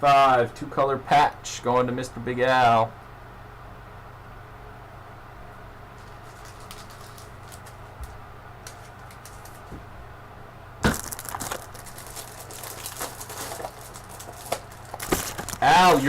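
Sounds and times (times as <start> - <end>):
cards and packaging rustling: 6.0 - 9.8, 10.8 - 16.0
plastic crinkling and clicking: 6.0 - 9.8, 10.9 - 16.0.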